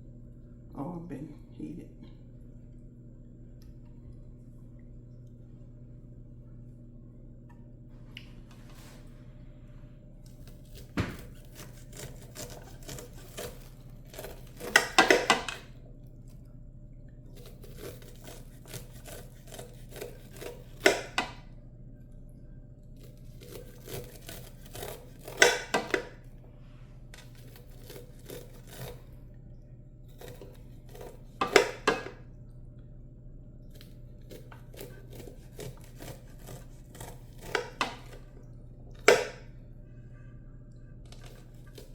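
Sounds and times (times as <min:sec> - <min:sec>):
knife scraping corn kernels: 0:10.4 - 0:15.6, 0:17.4 - 0:21.0, 0:23.0 - 0:26.0, 0:27.2 - 0:29.1, 0:30.1 - 0:31.6, 0:33.8 - 0:38.2.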